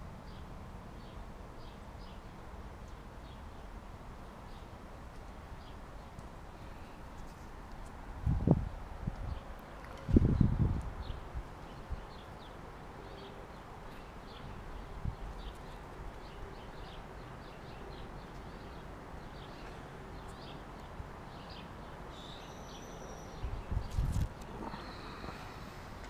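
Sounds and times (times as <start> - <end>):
outdoor background noise: 0.0 - 26.0
small birds chirping: 9.2 - 26.0.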